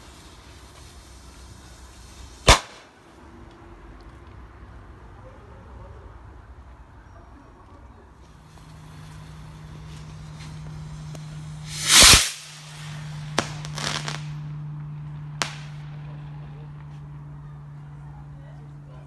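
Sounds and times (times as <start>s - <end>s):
firework cracks and crackle: 0.0s - 3.1s, 8.5s - 17.0s
firework hissing: 0.0s - 3.1s, 8.3s - 16.6s
firework bang: 2.4s - 2.9s, 10.3s - 16.5s.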